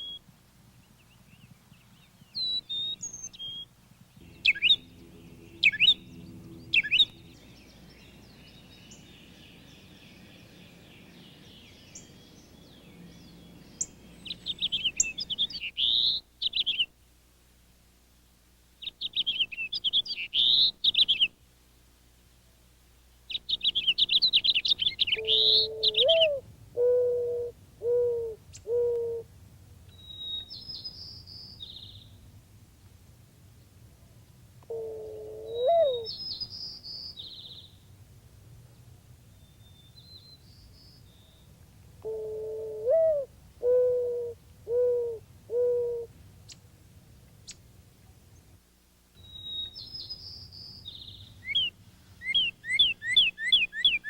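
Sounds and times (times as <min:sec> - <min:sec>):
small birds chirping and trilling: 0:00.8 - 0:16.9, 0:18.8 - 0:21.3, 0:23.3 - 0:26.3, 0:35.6 - 0:37.9, 0:38.8 - 0:41.6, 0:49.2 - 0:54.0
dove cooing: 0:24.9 - 0:29.3, 0:34.7 - 0:36.1, 0:42.0 - 0:46.1.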